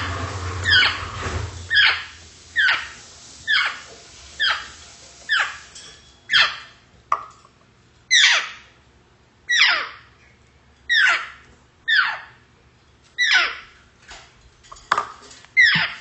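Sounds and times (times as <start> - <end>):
parrot call sliding down: 0.0 - 5.7.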